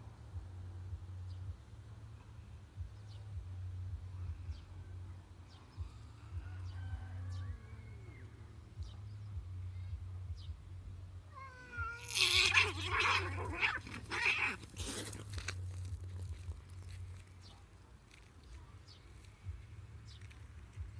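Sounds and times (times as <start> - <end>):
cats yowling and screeching: 11.3 - 15.4.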